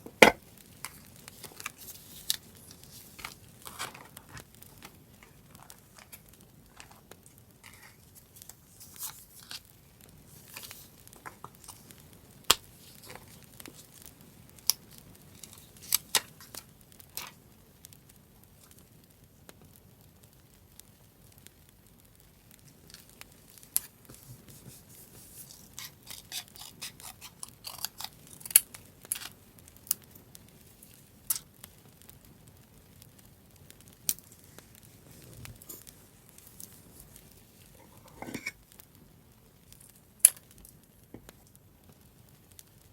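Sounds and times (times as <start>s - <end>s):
paper crinkling: 0.0s - 9.7s, 10.3s - 14.1s, 22.9s - 29.4s
scissors snipping paper: 25.4s - 29.4s
sharp clicks and crackles: 25.4s - 32.2s, 39.7s - 42.9s.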